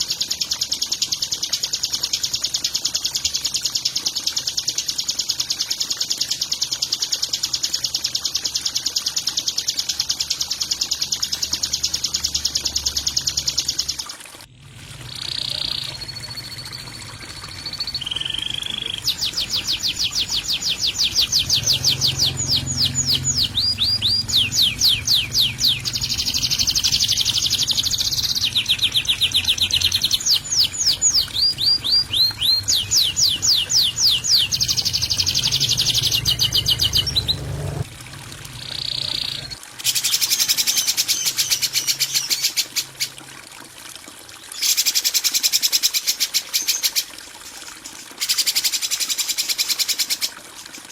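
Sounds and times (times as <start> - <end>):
songbird rapid rattling song: 15.1 - 37.8, 38.7 - 43.2.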